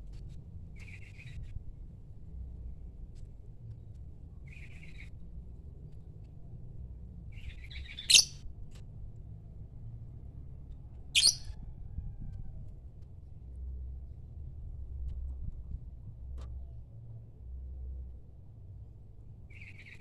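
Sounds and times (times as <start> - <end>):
lovebird chirping and calling: 7.4 - 8.4, 11.2 - 11.5.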